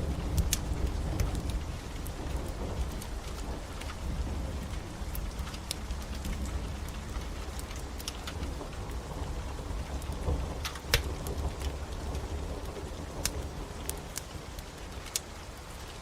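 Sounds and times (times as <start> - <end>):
steady rain: 0.0 - 16.0
wood fire crackling and popping: 0.0 - 16.0.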